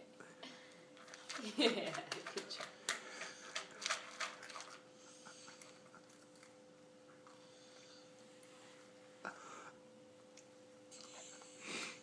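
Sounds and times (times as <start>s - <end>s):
toddler chewing crunchy cereal: 1.0s - 7.5s.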